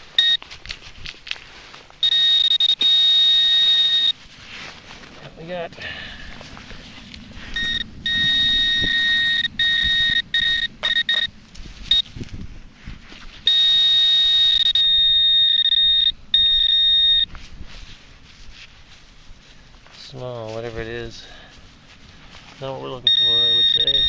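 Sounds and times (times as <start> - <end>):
metal detector buzzing tone: 0.0 - 0.4, 2.0 - 4.2, 7.5 - 12.2, 13.4 - 17.3, 23.0 - 24.0.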